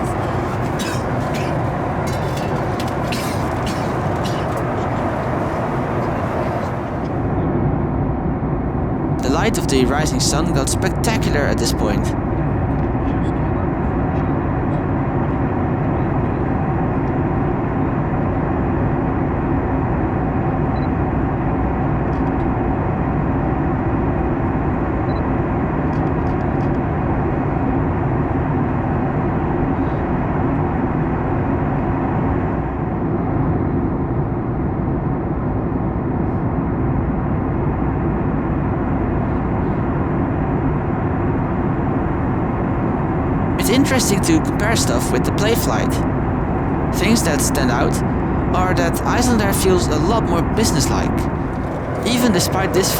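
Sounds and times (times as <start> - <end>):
airplane cabin airflow and engine: 0.0 - 7.7, 8.6 - 18.4, 42.0 - 52.9.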